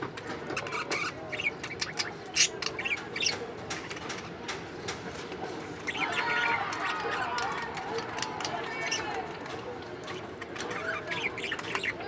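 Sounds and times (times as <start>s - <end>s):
birds chirping and squawking: 0.0s - 4.4s, 5.7s - 7.6s, 8.7s - 9.2s, 10.0s - 12.0s.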